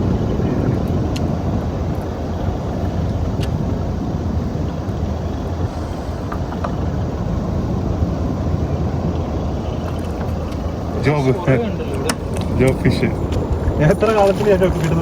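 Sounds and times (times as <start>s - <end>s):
boat engine rumble: 0.0s - 15.0s
faint clicks: 5.9s - 6.8s.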